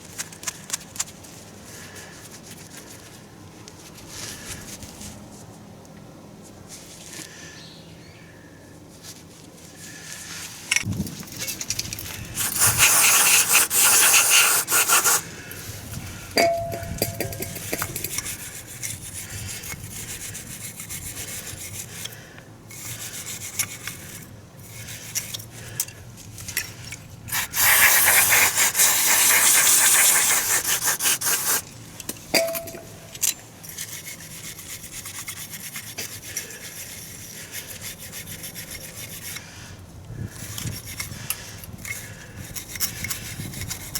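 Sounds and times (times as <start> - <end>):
harsh rasping scrubbing: 12.2 - 15.8, 27.3 - 31.6, 33.8 - 39.5
short metallic ring: 16.4 - 18.2, 32.4 - 33.1
tools knocking and handling: 16.4 - 18.3.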